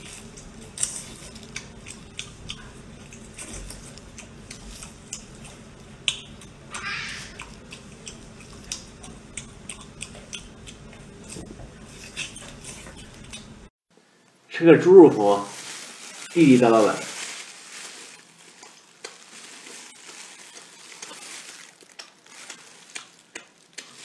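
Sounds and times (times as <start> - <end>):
wet chewing and lip smacking: 0.1 - 13.7, 18.4 - 24.0.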